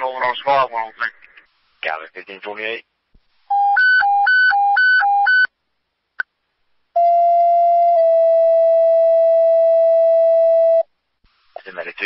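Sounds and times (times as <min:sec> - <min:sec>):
long steady paging tone: 0:03.5 - 0:05.5.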